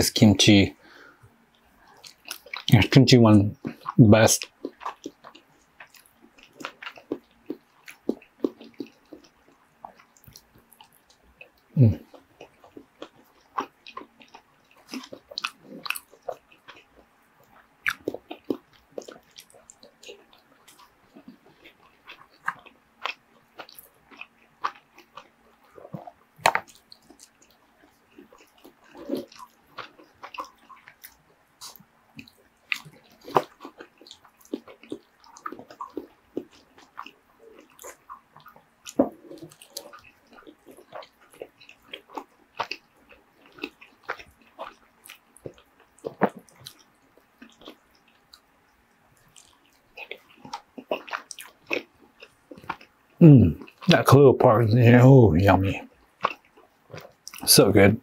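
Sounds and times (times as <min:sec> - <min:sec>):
person chewing with wet mouth sounds: 0:01.2 - 0:02.9, 0:03.5 - 0:53.9, 0:55.8 - 0:57.5
soft mouth smacks and clicks: 0:25.9 - 0:27.4.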